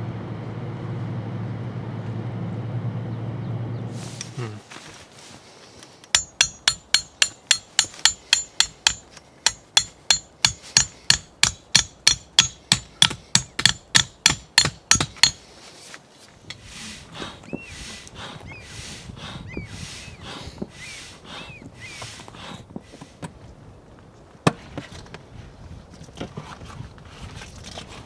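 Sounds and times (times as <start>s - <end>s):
rapid sharp metallic knocks: 6.2s - 15.4s.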